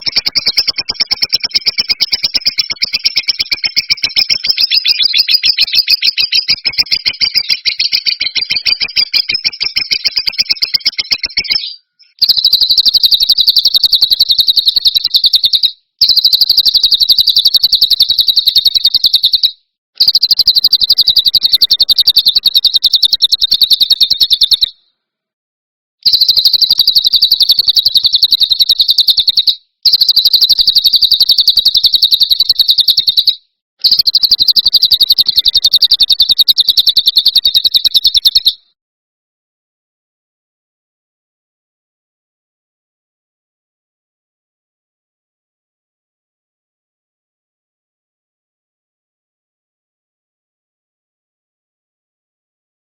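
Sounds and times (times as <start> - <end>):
songbird buzzing trill: 12.2 - 24.6.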